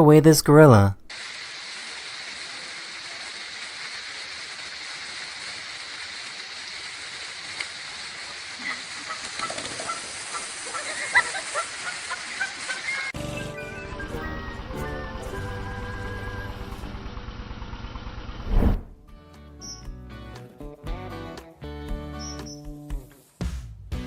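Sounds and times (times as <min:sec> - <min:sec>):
steady hiss: 0:01.1 - 0:13.0.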